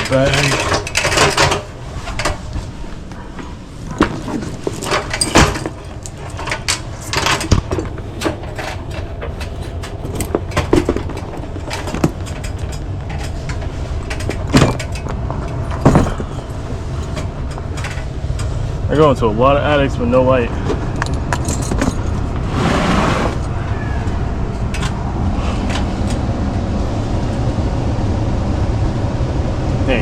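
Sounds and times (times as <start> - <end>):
tools rummaged and clinking: 0.0 - 19.1, 20.6 - 22.5
low rumble: 1.6 - 30.0.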